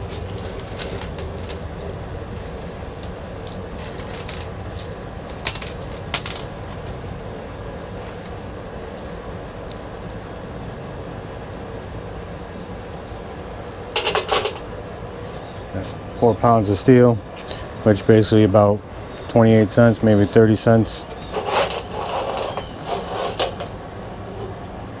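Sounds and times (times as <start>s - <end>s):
scrap metal clinking: 0.0s - 10.0s, 14.0s - 14.7s, 21.0s - 24.5s
low background noise: 0.0s - 25.0s.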